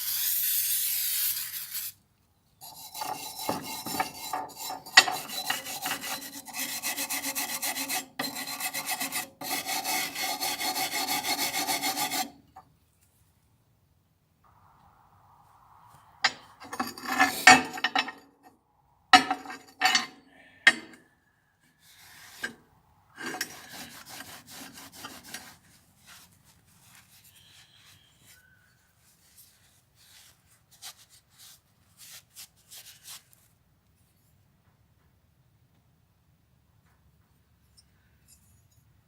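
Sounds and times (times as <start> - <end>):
rasping scrapes on metal: 2.6 - 12.6, 16.2 - 18.2, 19.2 - 21.0, 21.8 - 22.6, 23.2 - 28.6.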